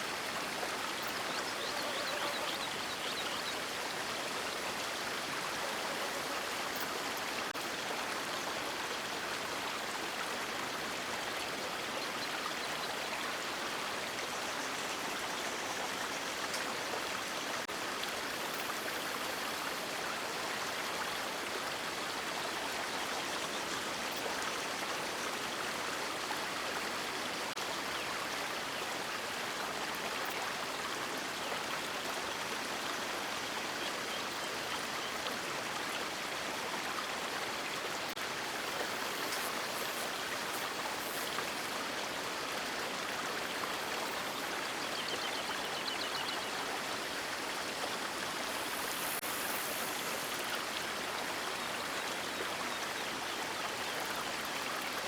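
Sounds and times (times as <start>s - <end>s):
river water rushing: 35.6s - 45.7s.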